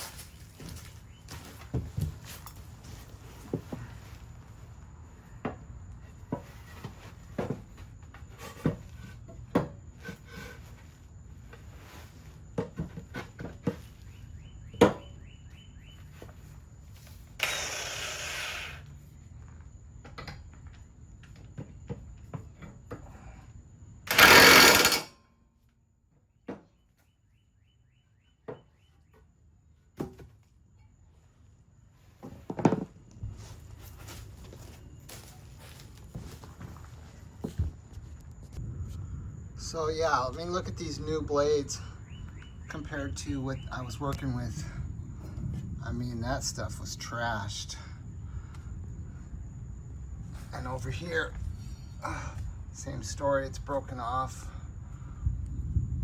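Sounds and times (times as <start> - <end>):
metal tools clanking: 24.1 - 25.1, 51.3 - 52.1
ratchet clicks: 24.1 - 25.1.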